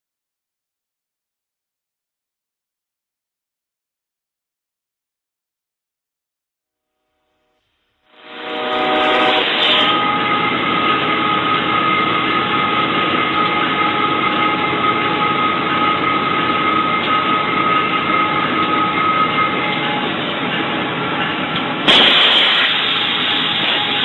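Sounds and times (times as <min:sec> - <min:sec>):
steady high tone: 0:08.2 - 0:22.0
locomotive running noise: 0:08.4 - 0:24.0.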